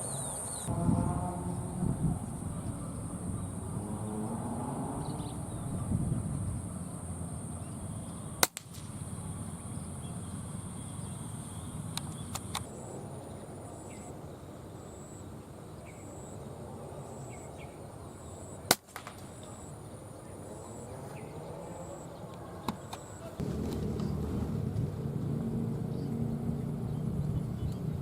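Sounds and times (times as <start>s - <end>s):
insects buzzing: 0.0s - 28.0s
air rifle shots: 8.4s - 9.0s, 18.7s - 19.4s.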